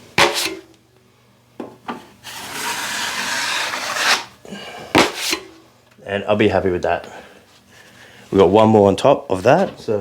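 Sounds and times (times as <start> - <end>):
steel blade scraping plaster: 0.2 - 0.6, 2.2 - 4.4, 5.0 - 5.5.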